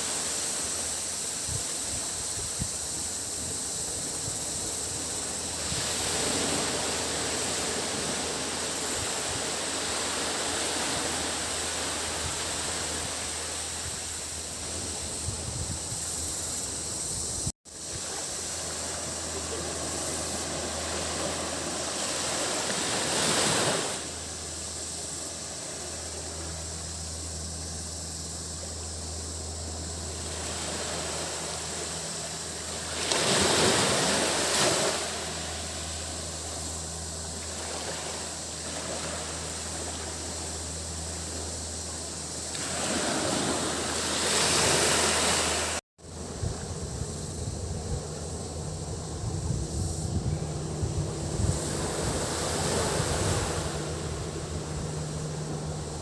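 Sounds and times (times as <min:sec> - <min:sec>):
small waves breaking on beach: 0:00.0 - 0:02.3, 0:03.2 - 0:15.4, 0:17.7 - 0:26.5, 0:30.0 - 0:46.4, 0:50.7 - 0:56.0
cicadas droning: 0:00.0 - 0:56.0
low steady hum: 0:23.6 - 0:56.0.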